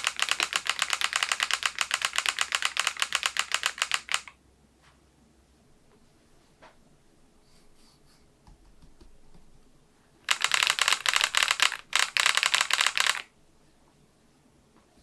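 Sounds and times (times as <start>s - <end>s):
mechanical keyboard key clicks: 0.0s - 4.3s, 10.3s - 13.3s.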